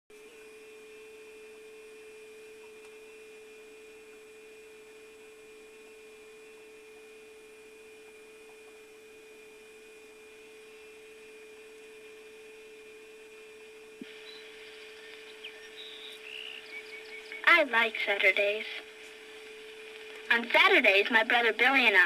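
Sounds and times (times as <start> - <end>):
faint electrical hum: 0.1 - 22.0
soft hiss: 13.7 - 22.0
faint chirps: 14.0 - 20.3.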